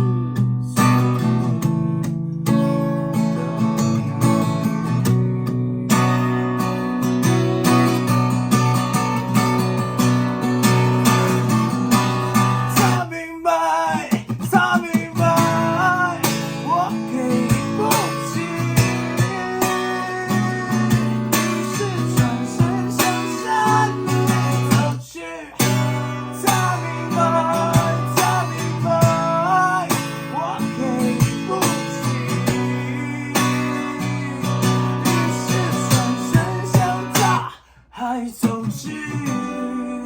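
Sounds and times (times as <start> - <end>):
strummed acoustic guitar: 0.0 - 40.0
person singing: 12.4 - 40.0.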